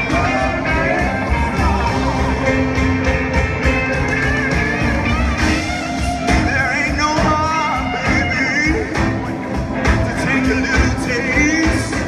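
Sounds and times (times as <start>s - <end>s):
blues-rock band playing: 0.0s - 12.0s
electric lead guitar: 0.0s - 12.0s.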